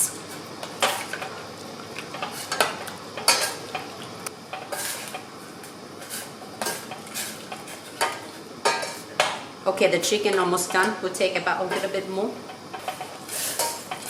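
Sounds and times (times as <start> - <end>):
utensil stirring food in pot: 11.6 - 14.0.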